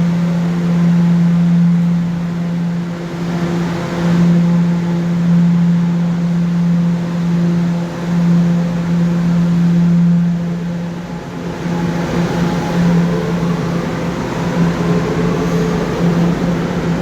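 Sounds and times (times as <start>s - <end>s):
subway train electrical hum: 0.0s - 17.0s.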